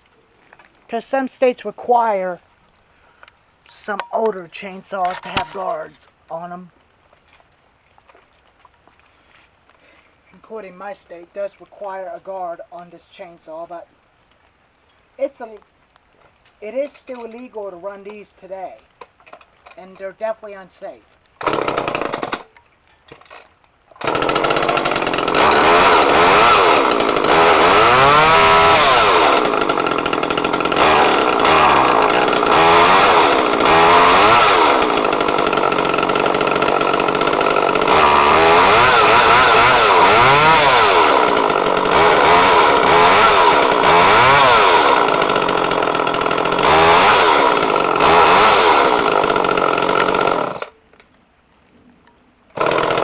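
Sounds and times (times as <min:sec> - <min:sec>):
chainsaw revving: 0:21.4 - 0:22.5, 0:24.0 - 0:50.7, 0:52.6 - 0:53.0.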